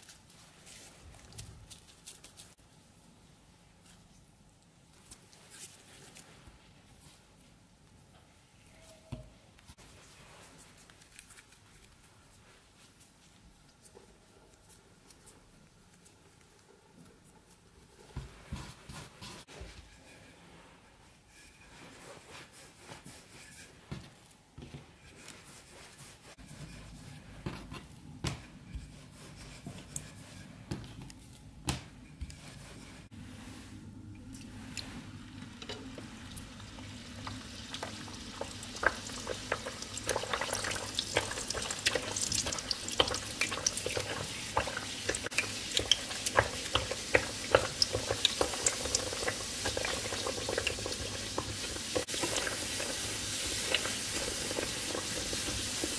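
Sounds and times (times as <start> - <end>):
dough frying in hot oil: 32.3 - 55.9.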